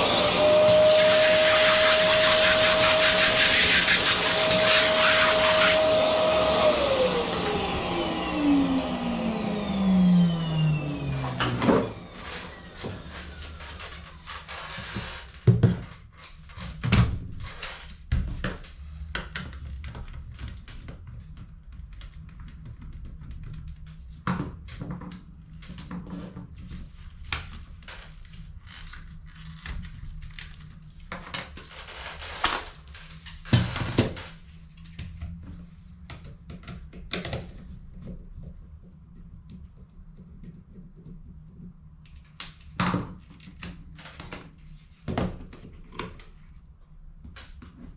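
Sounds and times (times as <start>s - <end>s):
vacuum cleaner motor spinning down: 0.0s - 15.2s.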